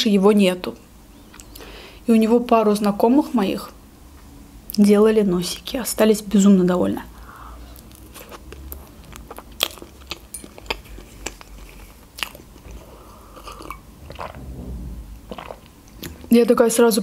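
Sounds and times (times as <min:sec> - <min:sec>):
chewing cake with wet clicks: 0:07.8 - 0:14.3.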